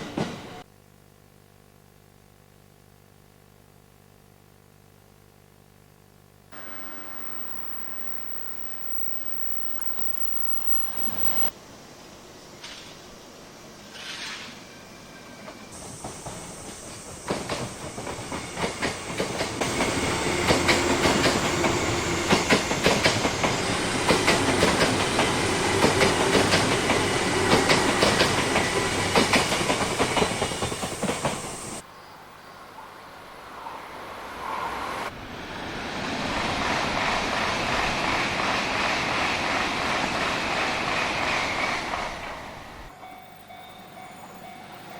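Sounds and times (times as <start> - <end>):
rising rush of noise: 6.6 - 11.5
train wheels clattering: 15.5 - 31.8.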